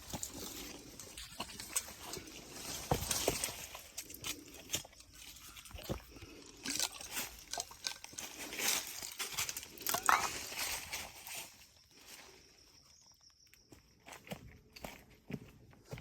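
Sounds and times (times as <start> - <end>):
footsteps crunching on loose ground: 13.6 - 16.0.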